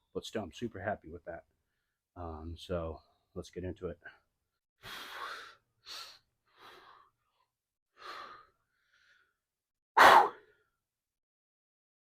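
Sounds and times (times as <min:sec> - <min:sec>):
man breathing heavily: 0:04.8 - 0:09.4.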